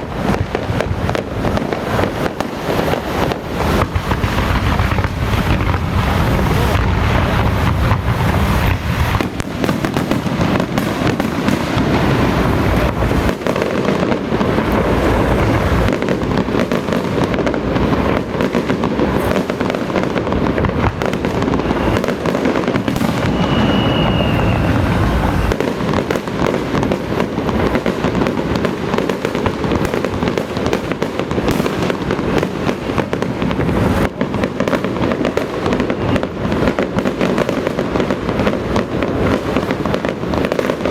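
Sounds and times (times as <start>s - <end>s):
firecrackers crackling: 0.0s - 40.9s
high whistle: 22.9s - 25.6s.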